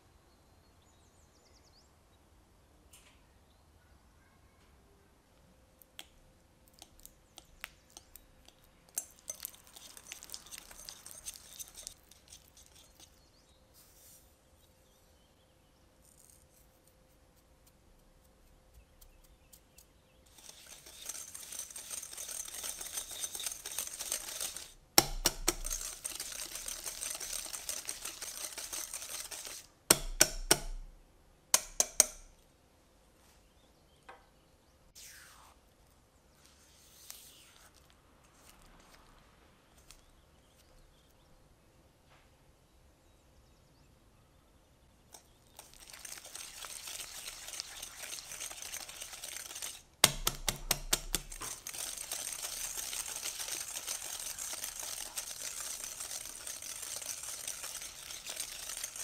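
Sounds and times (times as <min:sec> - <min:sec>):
spatula scraping glass bowl: 0:08.9 - 0:13.3, 0:20.3 - 0:29.7, 0:45.6 - 0:59.0
spatula knocking bowl: 0:20.4 - 0:30.9, 0:31.6 - 0:32.3, 0:49.5 - 0:51.7.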